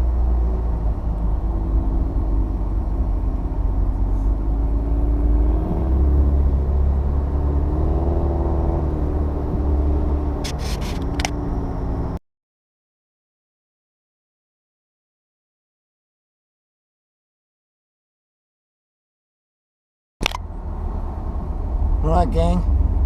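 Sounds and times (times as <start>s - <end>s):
car engine running: 0.0s - 12.2s
road rumble: 0.0s - 12.2s, 20.2s - 23.0s.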